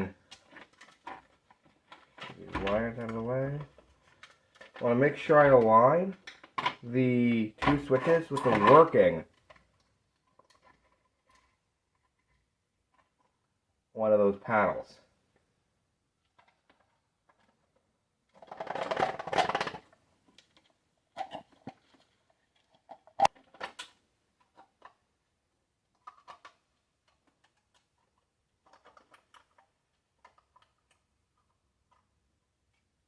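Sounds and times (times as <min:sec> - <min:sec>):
plastic parts clicking and knocking: 0:00.2 - 0:04.8, 0:05.5 - 0:06.9, 0:07.6 - 0:13.4, 0:16.2 - 0:33.0
rustling scrape: 0:07.8 - 0:09.1.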